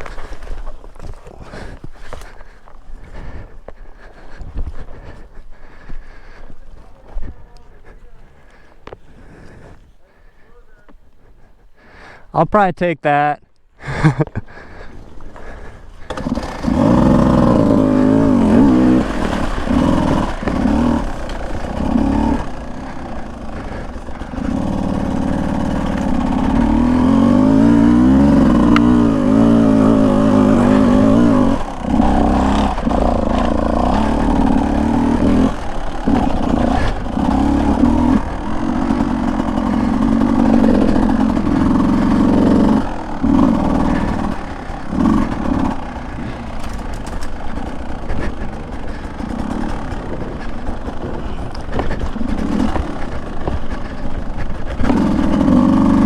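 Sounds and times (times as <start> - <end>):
two-stroke dirt bike engine: 0.0 - 12.2, 13.8 - 56.0.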